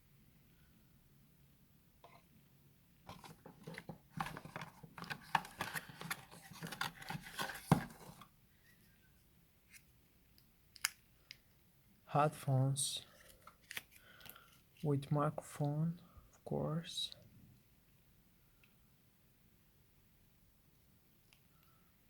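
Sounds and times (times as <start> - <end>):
packaging crinkling: 3.1 - 8.2.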